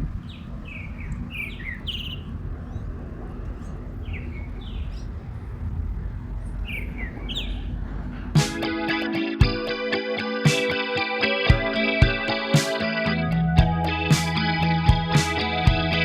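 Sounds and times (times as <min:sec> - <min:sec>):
low rumble: 0:00.0 - 0:08.9
birds chirping: 0:00.0 - 0:09.7.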